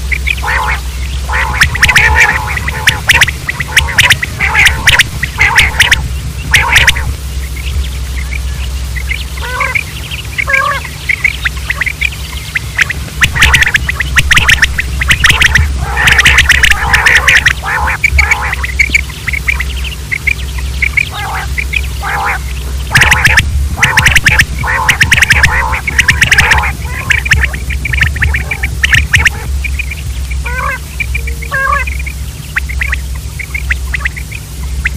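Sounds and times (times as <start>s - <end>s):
quails chirping and squawking: 0.0s - 34.9s
steady low hum: 0.0s - 34.9s.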